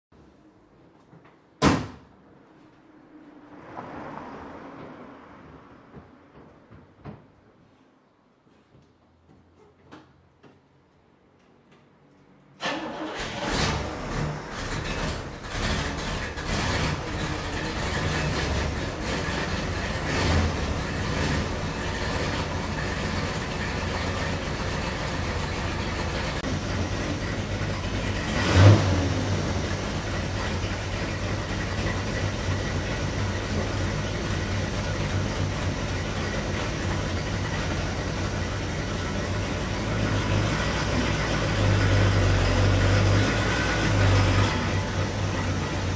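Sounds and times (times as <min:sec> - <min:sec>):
engine revving: 0:12.6 - 0:45.9
car engine idling unevenly: 0:12.7 - 0:45.9.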